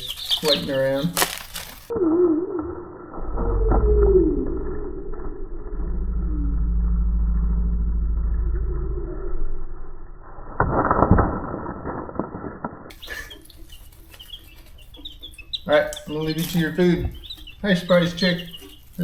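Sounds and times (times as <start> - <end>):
rustling clatter: 0.0 - 1.9
baby chicks peeping: 0.0 - 2.6, 12.9 - 19.0
low rumbling hum: 1.4 - 19.0.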